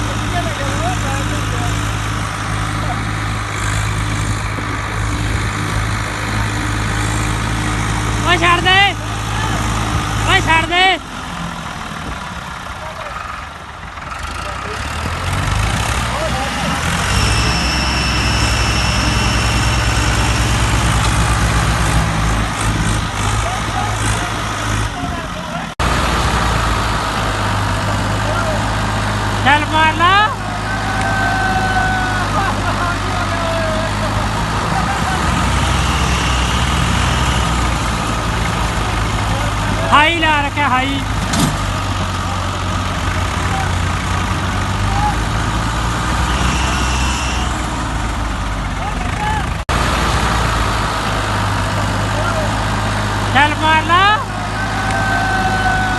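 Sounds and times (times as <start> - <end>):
tractor diesel engines running: 0.0 - 55.9
crowd voices: 23.0 - 25.8, 27.2 - 40.0, 51.3 - 55.9.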